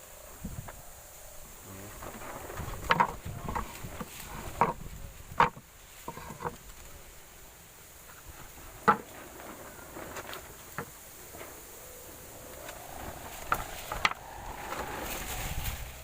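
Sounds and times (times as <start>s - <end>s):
wooden boards knocking: 2.6s - 6.6s, 8.8s - 9.2s.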